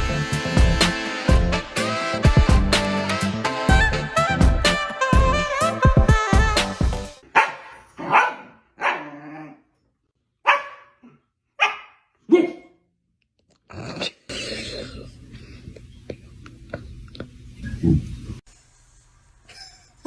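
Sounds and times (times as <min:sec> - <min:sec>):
dog barking: 0:07.2 - 0:09.2, 0:10.4 - 0:12.7.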